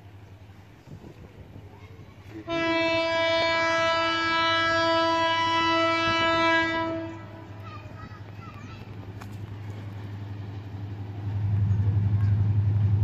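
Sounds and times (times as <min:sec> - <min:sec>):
locomotive horn blast: 0:02.5 - 0:07.5.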